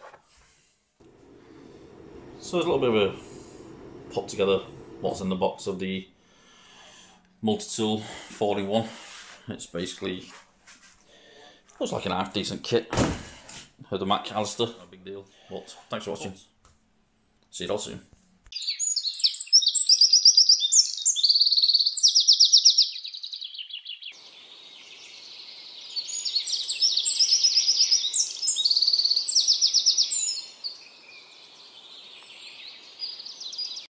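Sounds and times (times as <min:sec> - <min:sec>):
songbirds trilling and chirping: 0:18.5 - 0:33.9.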